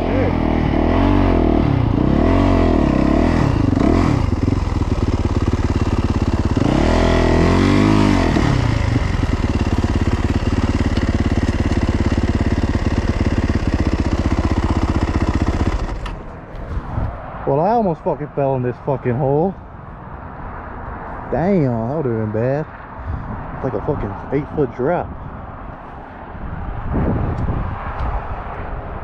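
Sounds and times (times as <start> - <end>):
dirt bike engine revving: 0.0 - 16.3.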